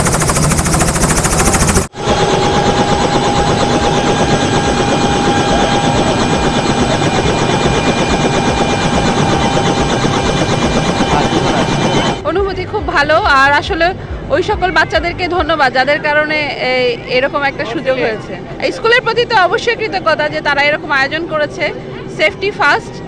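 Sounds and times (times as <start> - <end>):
helicopter rotor chop: 0.0 - 13.9
helicopter whine: 0.0 - 23.0.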